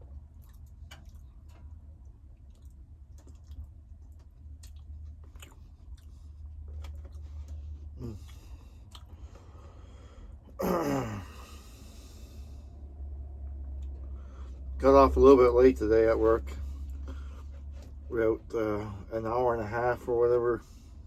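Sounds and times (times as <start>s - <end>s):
steady low hum: 0.0s - 21.0s
mouth clicks while chewing: 0.2s - 9.4s.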